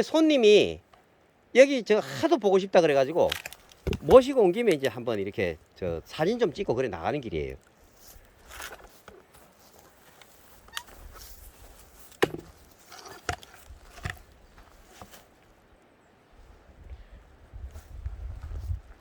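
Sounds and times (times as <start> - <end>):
axe splitting wood: 12.1 - 14.3.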